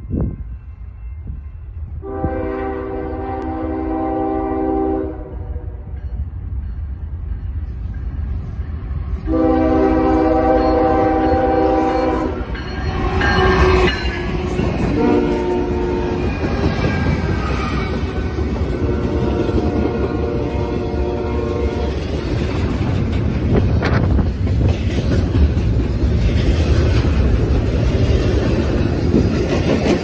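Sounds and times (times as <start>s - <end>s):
locomotive air horn blasts: 2.0s - 5.8s, 9.2s - 12.5s, 13.6s - 16.4s, 18.7s - 22.0s
train wheels clacking on rails: 6.0s - 30.0s.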